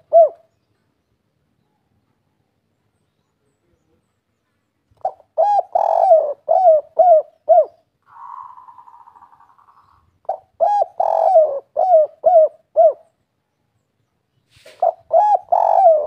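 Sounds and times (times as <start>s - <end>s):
dove cooing: 0.0s - 0.5s, 5.0s - 13.1s, 14.6s - 16.0s.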